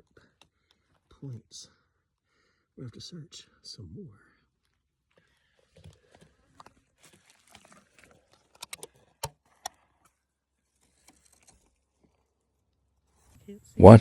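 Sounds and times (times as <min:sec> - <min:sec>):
faint rustling and handling: 0:04.4 - 0:13.6.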